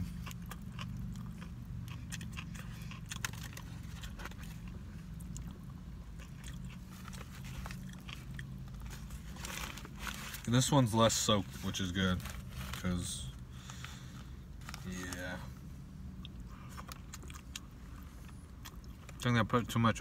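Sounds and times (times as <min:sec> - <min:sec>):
man chewing: 0:00.0 - 0:10.4, 0:16.1 - 0:19.2.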